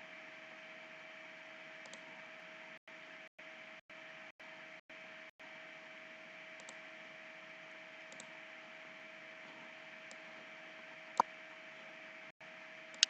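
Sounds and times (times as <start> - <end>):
faint hum: 0.0 - 13.0
computer mouse clicks: 1.8 - 2.1, 6.6 - 6.8, 8.1 - 8.3.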